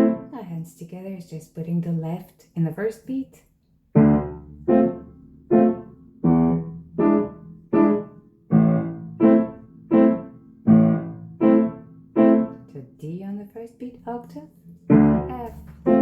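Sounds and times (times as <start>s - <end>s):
piano waltz: 0.0s - 0.4s, 4.0s - 12.8s, 14.5s - 16.0s.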